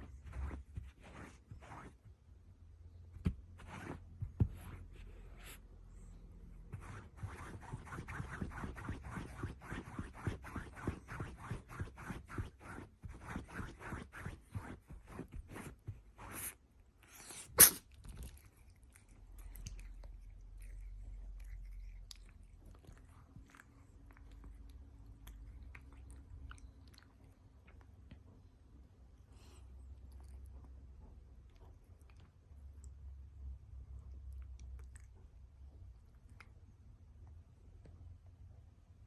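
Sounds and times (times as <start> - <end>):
cat crunching food: 17.8 - 27.9.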